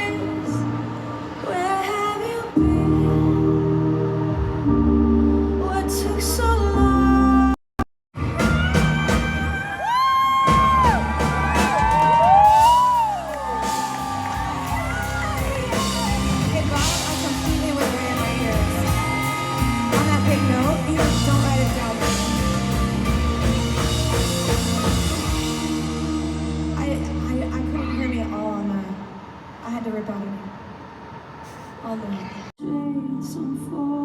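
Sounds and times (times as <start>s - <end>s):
woman singing: 0.0s - 0.7s, 1.4s - 7.6s, 8.3s - 10.8s, 14.3s - 22.6s, 32.6s - 34.0s
pop-rock band playing: 8.2s - 9.8s, 10.4s - 28.1s
steady drum beat: 10.5s - 27.2s.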